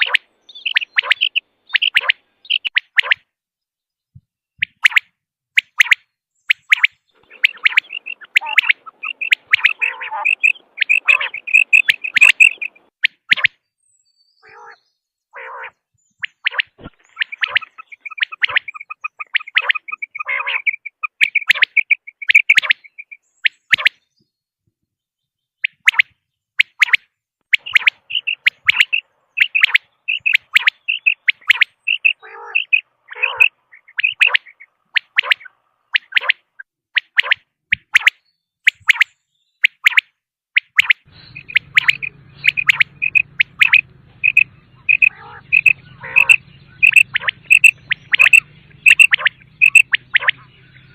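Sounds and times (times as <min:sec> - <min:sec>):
lower raspy bird notes: 0:00.0 - 0:03.1, 0:06.6 - 0:13.5, 0:14.4 - 0:24.1, 0:27.5 - 0:36.6, 0:40.8 - 0:50.9
quail calling: 0:00.0 - 0:03.2, 0:05.8 - 0:13.6, 0:14.4 - 0:24.0, 0:25.6 - 0:38.1, 0:40.7 - 0:50.9.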